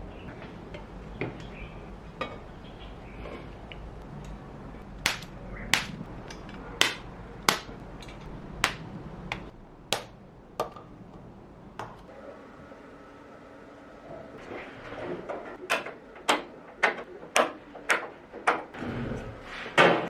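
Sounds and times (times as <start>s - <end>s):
low background hum: 0.0s - 20.0s
hammer strikes on metal: 5.0s - 7.8s, 8.6s - 10.8s.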